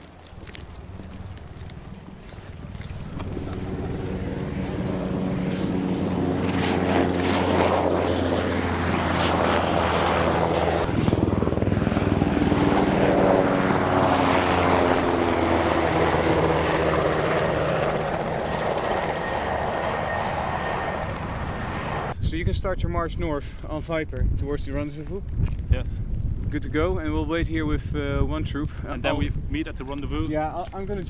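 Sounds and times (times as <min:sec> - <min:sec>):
helicopter flying past: 0:00.0 - 0:22.2.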